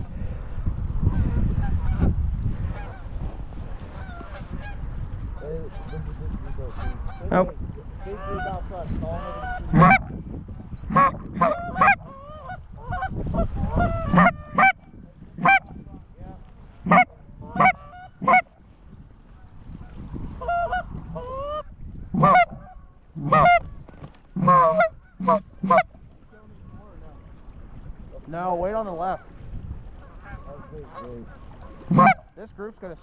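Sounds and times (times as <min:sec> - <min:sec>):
geese honking: 0:02.7 - 0:03.1, 0:03.9 - 0:04.8, 0:05.4 - 0:07.4, 0:08.0 - 0:10.1, 0:10.8 - 0:15.8, 0:16.8 - 0:18.6, 0:20.4 - 0:26.8, 0:30.0 - 0:32.3.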